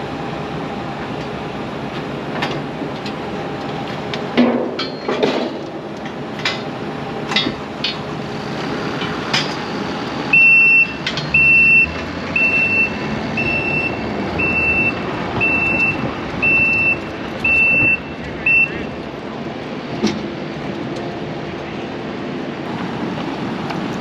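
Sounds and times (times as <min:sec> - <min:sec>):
diesel farm machine running: 0:00.0 - 0:24.0
metal clanks: 0:04.4 - 0:05.6
reversing alarm beeps: 0:10.3 - 0:19.0.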